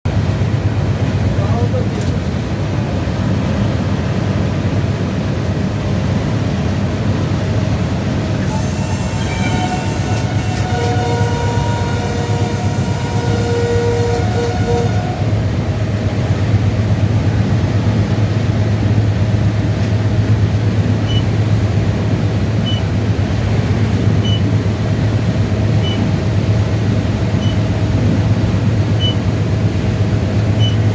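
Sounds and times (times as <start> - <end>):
train rumbling: 0.0 - 30.9
steady tones: 8.1 - 19.2
short high beep: 8.4 - 15.3, 27.4 - 27.6.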